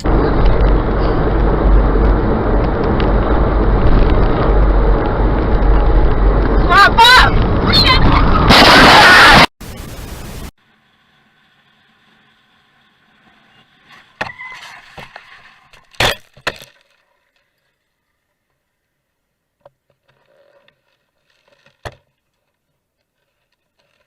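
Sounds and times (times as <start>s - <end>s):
vehicle engine drone: 0.0s - 14.5s.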